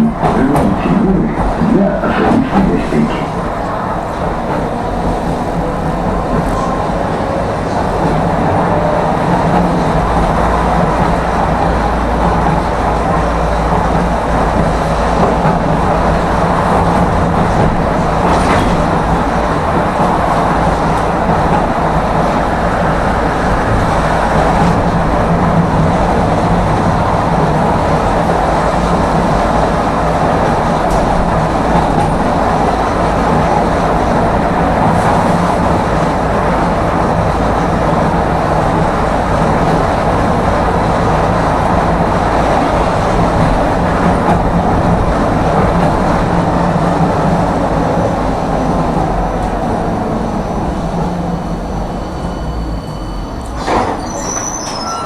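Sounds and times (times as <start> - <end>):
tram rolling on rails: 0.0 - 55.0.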